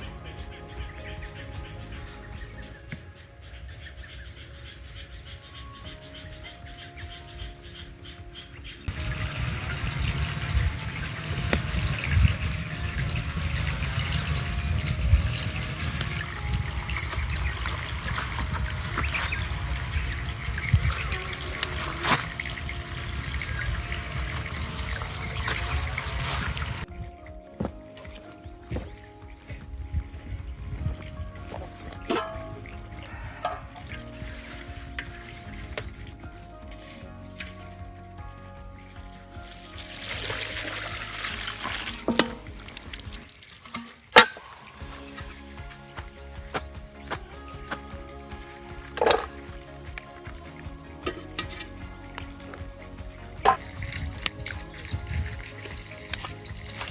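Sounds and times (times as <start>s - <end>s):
background music: 0.0s - 56.9s
water trickling: 7.8s - 56.9s
liquid pouring: 8.9s - 27.0s.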